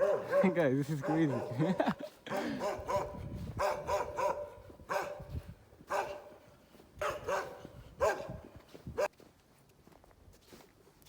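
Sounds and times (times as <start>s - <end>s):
dog barking: 0.0s - 5.3s, 5.9s - 6.4s, 7.0s - 8.4s.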